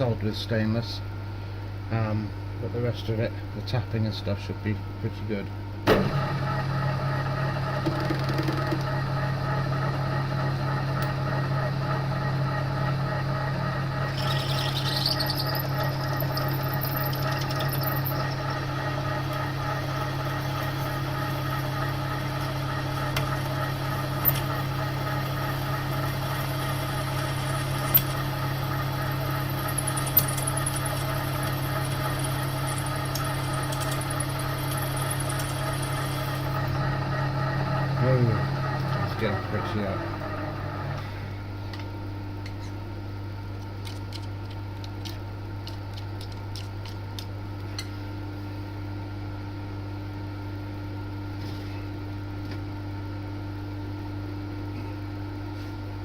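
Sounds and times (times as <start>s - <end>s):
milling machine running: 5.9s - 41.1s
high squeal from drilling: 14.1s - 18.4s.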